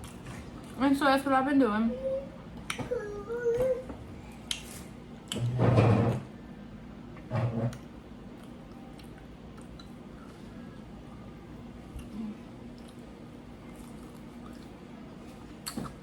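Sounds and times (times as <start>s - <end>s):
chewing mouth noise: 12.0s - 16.0s.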